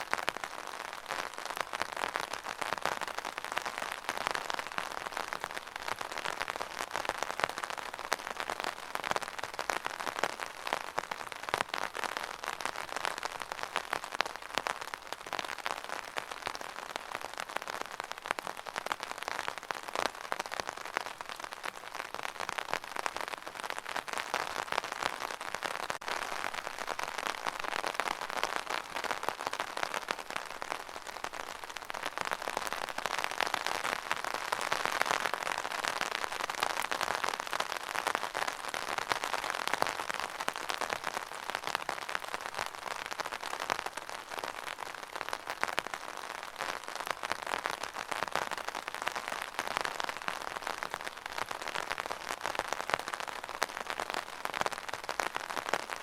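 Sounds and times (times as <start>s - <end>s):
rain on hard surface: 0.0s - 56.0s.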